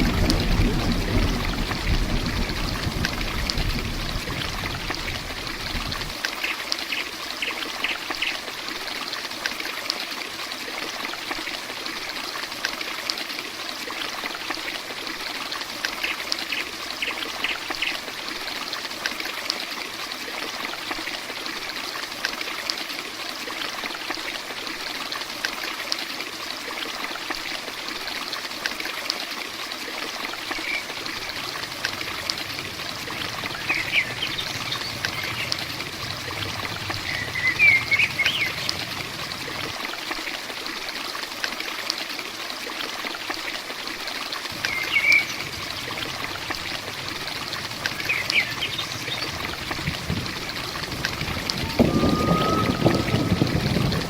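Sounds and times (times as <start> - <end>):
heavy rain falling: 0.0 - 6.2, 30.1 - 41.4, 44.4 - 54.0
low rumble: 0.0 - 6.2, 31.1 - 39.8, 44.6 - 54.0.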